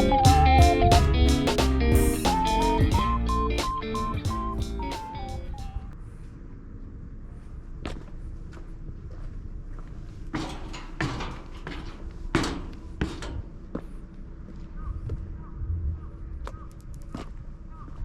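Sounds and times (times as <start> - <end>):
harsh caw-like bird calls: 14.6 - 16.9, 17.6 - 18.0.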